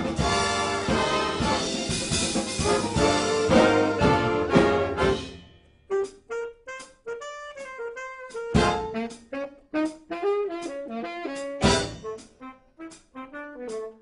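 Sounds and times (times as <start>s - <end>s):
drum and cymbal hits: 0.0s - 5.5s, 8.3s - 9.2s, 11.4s - 13.0s
band ensemble chord: 0.0s - 6.1s, 11.6s - 12.3s
solo horn jazz melody: 0.0s - 14.0s.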